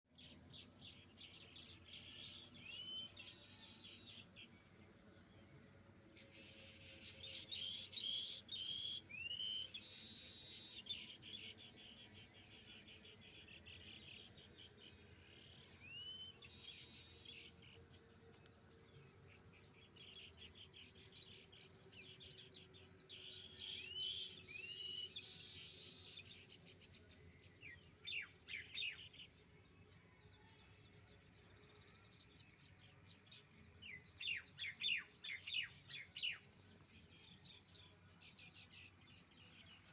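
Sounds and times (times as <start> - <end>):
insects chirping: 0.2 - 39.9
whistled bird notes: 23.2 - 26.3.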